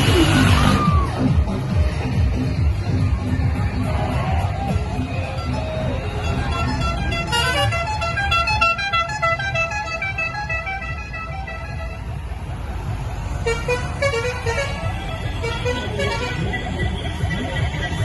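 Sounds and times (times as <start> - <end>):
musical vehicle horn tune: 6.1 - 12.2, 13.4 - 18.0.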